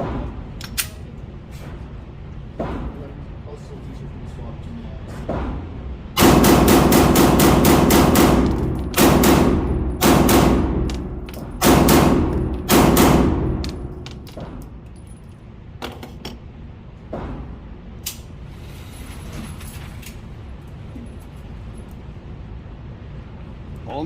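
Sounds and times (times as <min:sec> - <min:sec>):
rapid pistol shots: 0:06.2 - 0:14.2.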